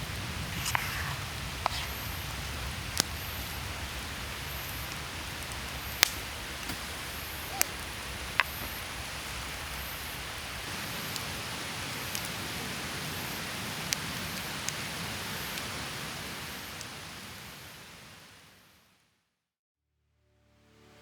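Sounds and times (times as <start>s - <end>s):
sharp fire pops: 0.0s - 11.3s
campfire crackling: 0.0s - 18.4s.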